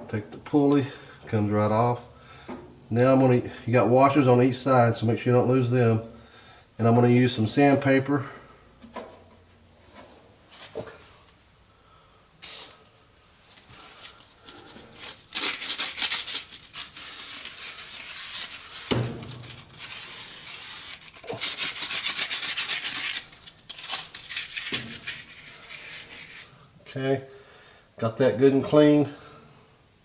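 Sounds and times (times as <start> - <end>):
sandpaper scratching on metal: 15.0 - 26.5.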